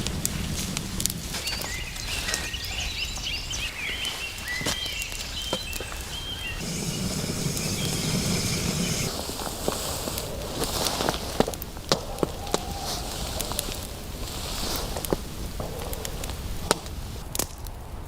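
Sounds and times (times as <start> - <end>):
low wind rumble: 0.0 - 18.0
small bird chirping: 0.1 - 17.2.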